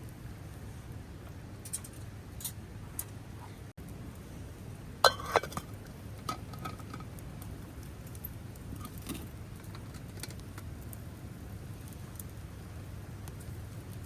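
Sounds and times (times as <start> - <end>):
low background rush: 0.0 - 14.0
hard objects clinking: 5.1 - 7.1.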